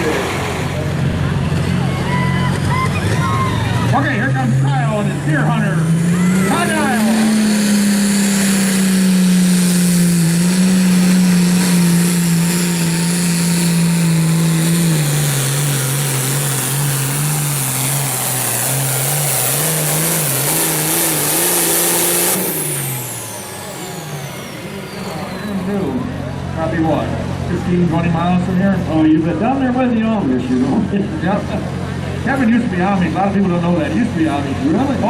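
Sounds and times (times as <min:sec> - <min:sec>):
tractor engine under full throttle: 0:00.0 - 0:35.0
turbo whine: 0:00.3 - 0:27.8.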